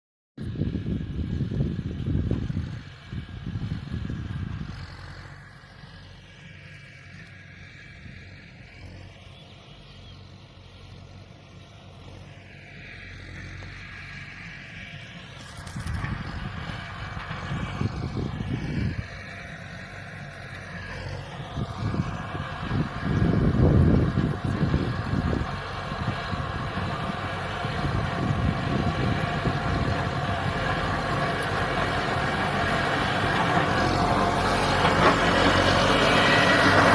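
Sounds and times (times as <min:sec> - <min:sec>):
tractor diesel engine running: 0:00.4 - 0:36.9.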